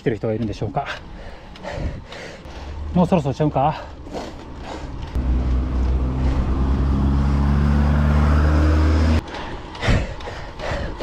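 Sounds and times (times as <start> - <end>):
vehicle engine humming: 1.0 - 9.8
dull rushing noise: 1.0 - 11.0.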